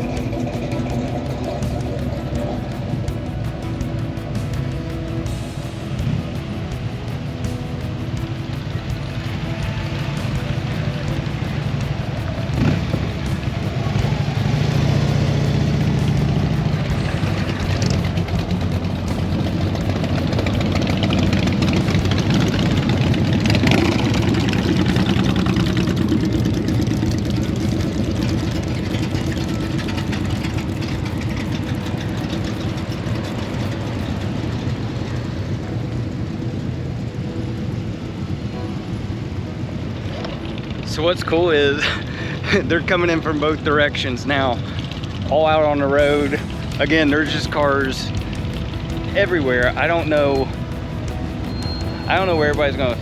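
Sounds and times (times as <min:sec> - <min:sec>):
car engines idling in traffic: 0:00.0 - 0:35.1
road noise: 0:00.0 - 0:53.0.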